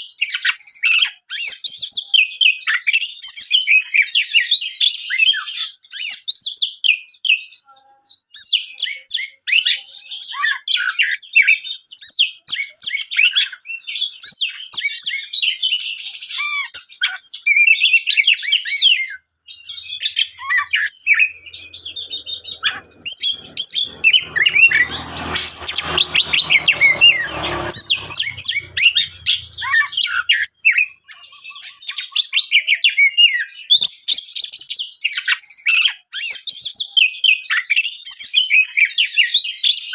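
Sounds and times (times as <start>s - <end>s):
bird singing rapid varied song: 19.4s - 30.1s
low hum: 19.8s - 30.0s.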